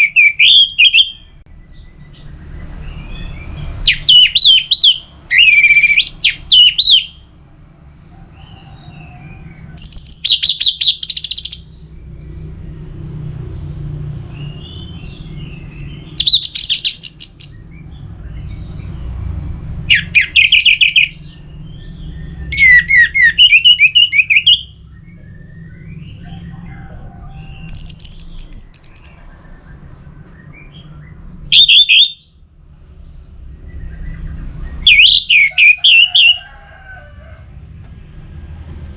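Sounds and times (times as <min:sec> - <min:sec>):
low background rumble: 0:32.2 - 0:35.3.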